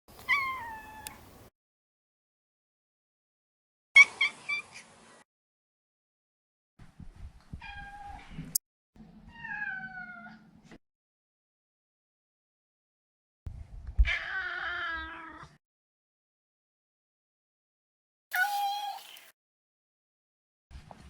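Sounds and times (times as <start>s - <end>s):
cat meowing and chirping: 0.2s - 1.2s, 18.3s - 19.2s.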